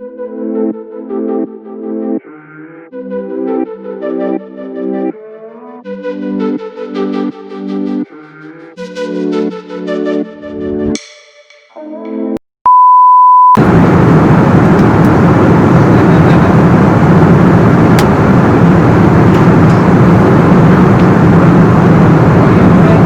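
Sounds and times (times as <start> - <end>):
music: 0.0 - 12.4
electronic beep: 12.7 - 13.6
vehicle rumbling: 13.6 - 23.0.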